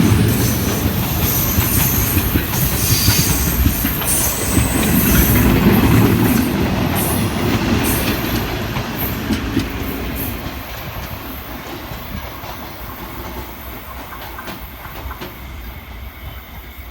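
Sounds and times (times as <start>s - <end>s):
train wheels clacking on rail joints: 0.0s - 16.8s.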